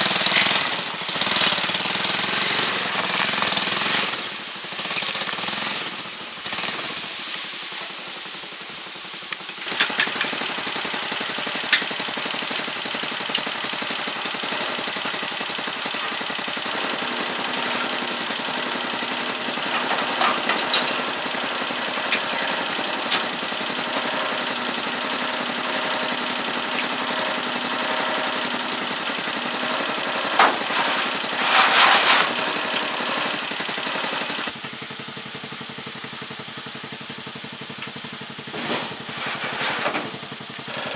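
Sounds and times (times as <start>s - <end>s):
small engine running: 0.0s - 40.9s
rushing burst: 30.2s - 32.8s.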